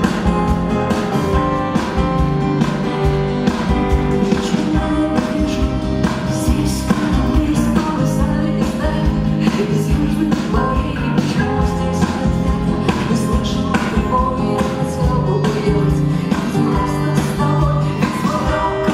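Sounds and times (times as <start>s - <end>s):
guitars: 0.0s - 18.9s
live rock band: 0.0s - 18.9s
person singing: 4.1s - 18.9s.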